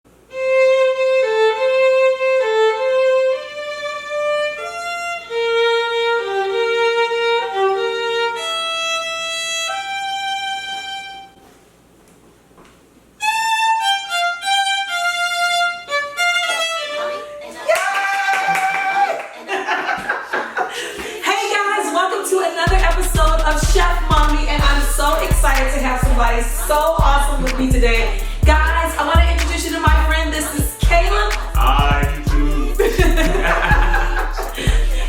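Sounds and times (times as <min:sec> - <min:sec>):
violin playing slow melody: 0:00.2 - 0:11.4, 0:13.2 - 0:17.6.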